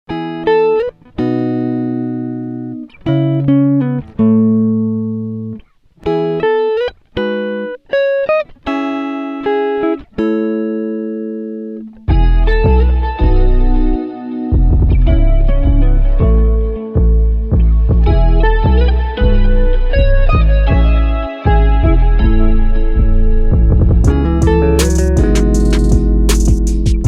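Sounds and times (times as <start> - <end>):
plucked-string melody: 0.1 - 27.0
deep bass: 12.1 - 27.0.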